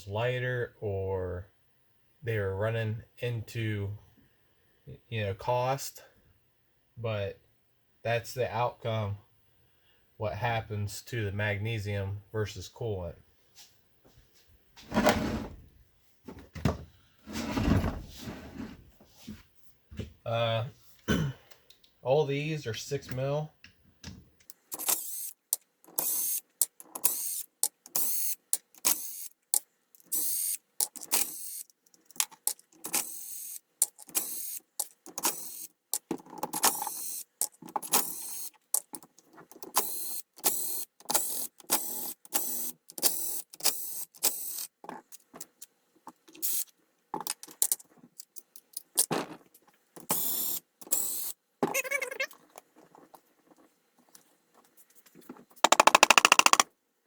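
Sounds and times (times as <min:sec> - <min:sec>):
ratchet wrench clicking: 0:25.9 - 0:37.2, 0:55.7 - 0:56.6.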